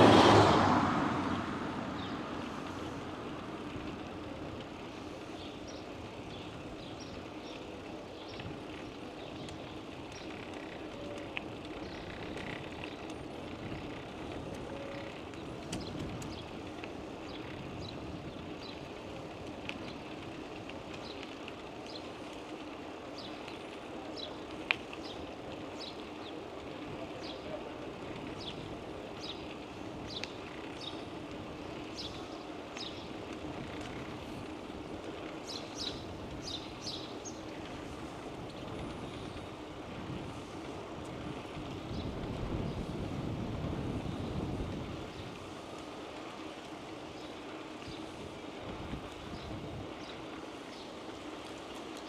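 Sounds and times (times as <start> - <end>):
bicycle rolling: 0.0 - 52.0
wind noise: 37.8 - 45.6, 47.8 - 50.1.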